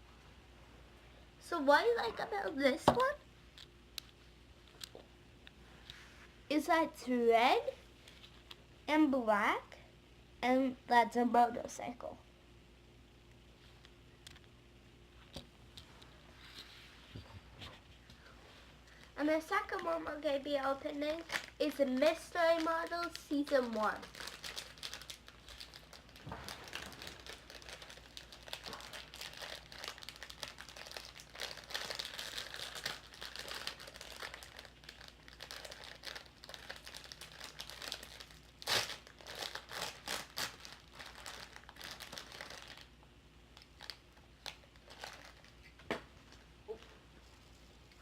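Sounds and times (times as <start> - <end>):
packaging crinkling and tearing: 19.5 - 45.8.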